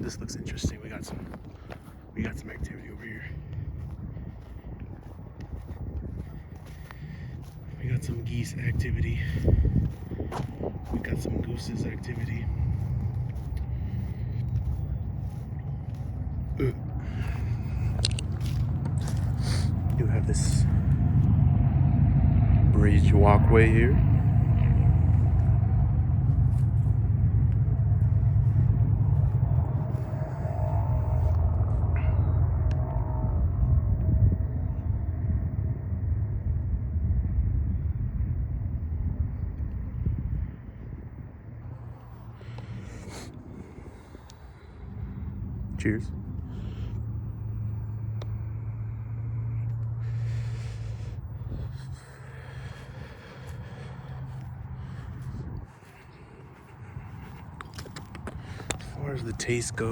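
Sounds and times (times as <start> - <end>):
low engine hum: 0.0 - 59.9
steady low rumble: 0.0 - 59.9
light clicks and ticks: 17.8 - 20.0.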